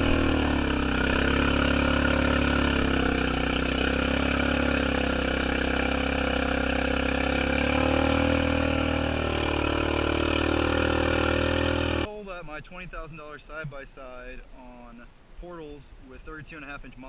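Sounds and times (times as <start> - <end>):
atv engine churning through mud: 0.0 - 12.1.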